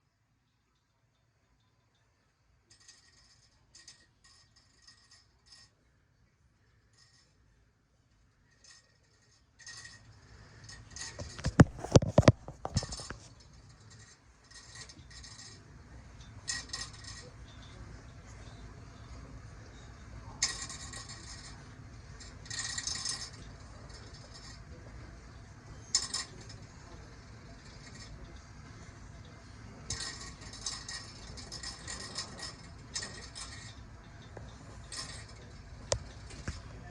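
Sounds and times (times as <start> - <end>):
cardboard rustling and scraping: 11.4 - 13.3.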